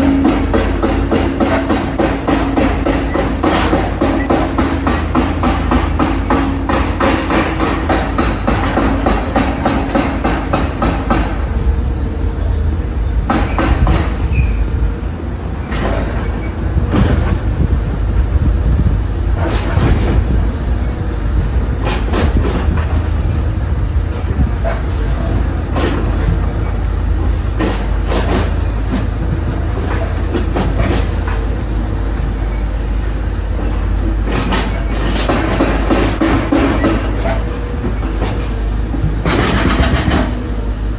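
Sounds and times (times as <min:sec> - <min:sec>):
knocks and bangs: 0:00.0 - 0:11.9
low machinery rumble: 0:00.0 - 0:40.9.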